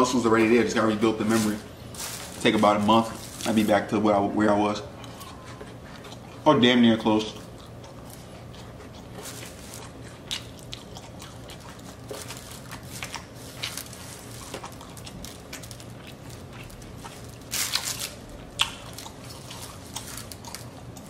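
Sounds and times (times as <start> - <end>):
wet chewing and crunching: 4.8 - 21.0.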